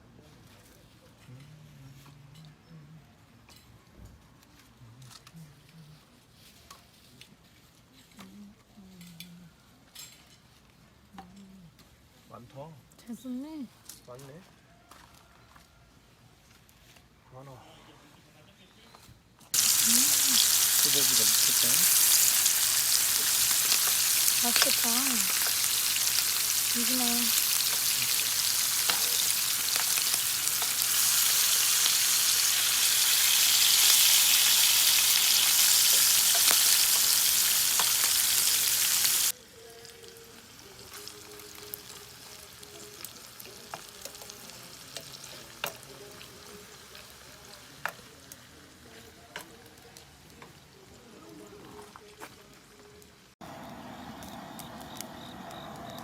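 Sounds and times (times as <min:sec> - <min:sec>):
beef sizzling in a pan: 0:19.6 - 0:49.2.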